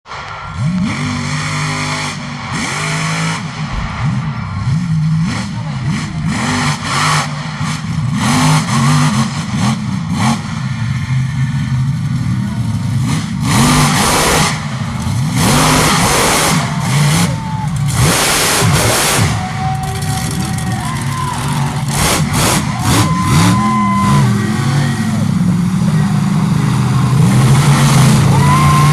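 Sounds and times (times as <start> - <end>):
bursts of rushing noise: 0.1 - 8.2
monster truck engine revving: 0.1 - 28.9.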